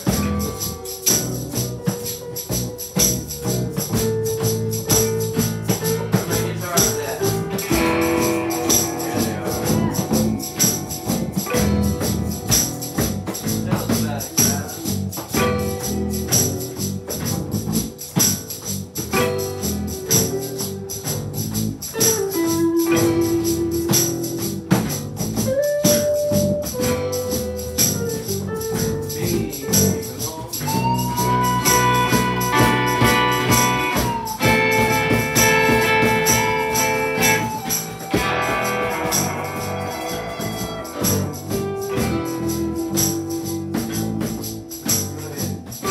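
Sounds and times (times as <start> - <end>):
live band playing: 0.0 - 45.9
tambourine beat: 0.0 - 45.9
long held melody notes: 30.6 - 44.2.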